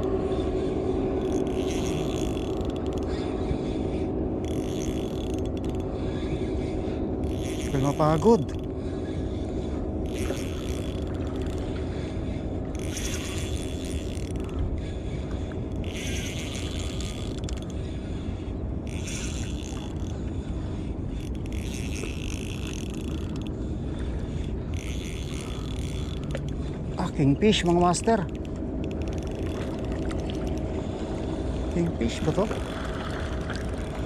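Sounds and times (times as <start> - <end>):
steady low hum: 0.0 - 34.0
spinning reel being cranked: 1.2 - 3.2, 4.4 - 5.8, 7.2 - 8.7, 10.0 - 11.6, 12.8 - 14.5, 15.8 - 17.7, 18.8 - 20.1, 21.2 - 23.6, 24.4 - 26.5, 27.6 - 30.6.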